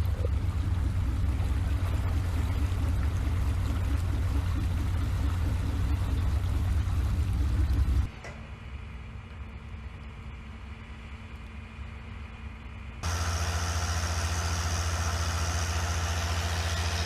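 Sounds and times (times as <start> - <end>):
water rushing: 0.0 - 8.1.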